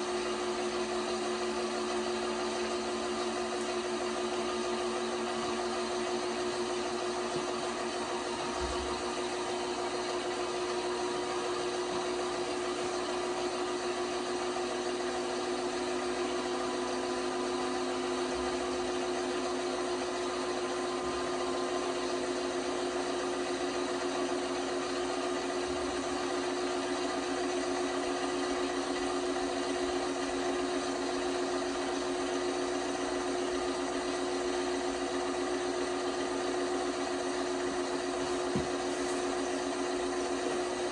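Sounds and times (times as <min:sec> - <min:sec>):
washing machine motor hum: 0:00.0 - 0:22.8, 0:25.0 - 0:29.1, 0:36.0 - 0:40.9.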